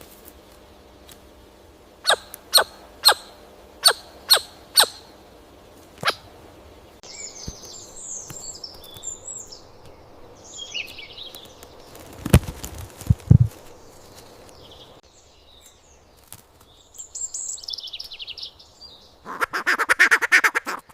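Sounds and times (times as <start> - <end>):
high bird twittering song: 2.0 - 5.2, 6.0 - 12.3, 13.5 - 19.3
sharp falling bird calls: 2.0 - 5.2, 6.0 - 6.3, 7.0 - 15.0.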